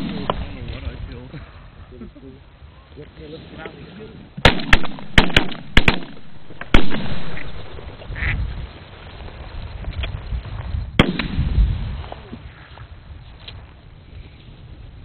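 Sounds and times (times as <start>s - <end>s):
shotgun blasts: 0.0s - 0.9s, 4.4s - 8.0s, 11.0s - 12.1s
ducks quacking: 8.1s - 8.4s.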